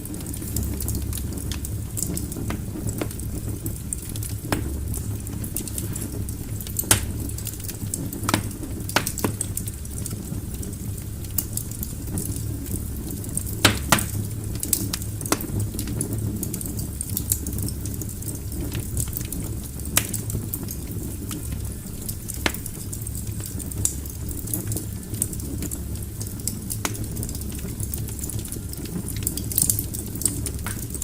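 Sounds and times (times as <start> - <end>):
log fire crackling: 0.0 - 31.0
sharp pops and snaps: 0.4 - 10.1, 13.2 - 16.0, 19.2 - 21.4, 22.2 - 22.8, 26.7 - 27.1, 28.9 - 31.0.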